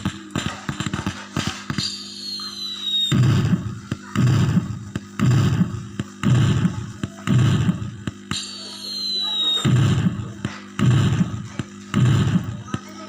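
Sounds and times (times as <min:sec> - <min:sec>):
fireworks booming: 0:00.0 - 0:12.9
low hum: 0:00.0 - 0:13.0
firework whistle: 0:01.4 - 0:04.8, 0:08.3 - 0:10.2.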